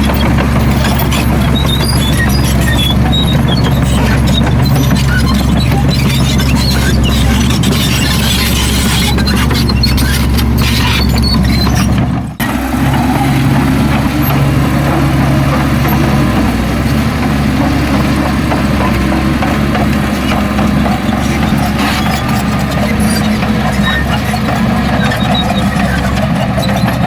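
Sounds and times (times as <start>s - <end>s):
heavy diesel engine running: 0.0s - 27.0s.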